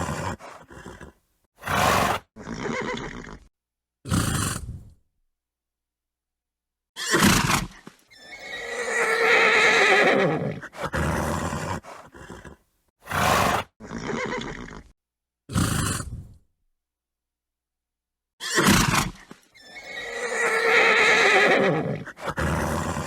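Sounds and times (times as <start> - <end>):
horse snorting: 0.0 - 3.5, 4.1 - 4.9, 7.1 - 14.9, 15.5 - 16.4, 18.5 - 23.0
horse whinnying: 0.0 - 3.5, 7.0 - 14.9, 18.4 - 23.0.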